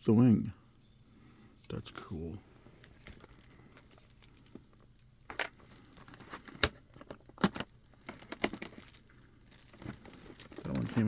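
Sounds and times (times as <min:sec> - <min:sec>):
packing material crinkling: 0:02.6 - 0:11.0
plastic parts clicking: 0:05.3 - 0:11.0.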